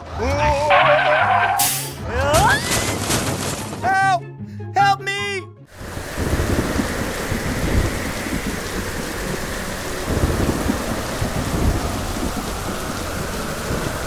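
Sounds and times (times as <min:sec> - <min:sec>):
heavy rain: 0:05.7 - 0:14.0
thunder rumbling: 0:05.7 - 0:14.0.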